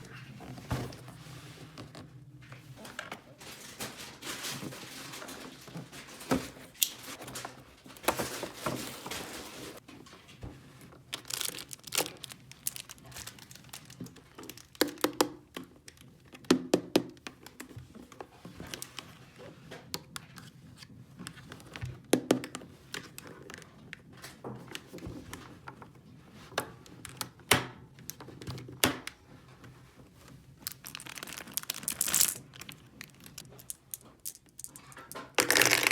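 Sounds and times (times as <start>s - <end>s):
plastic packaging crinkling: 11.1s - 15.0s, 30.5s - 35.9s
plastic toy pieces clicking: 30.8s - 35.9s.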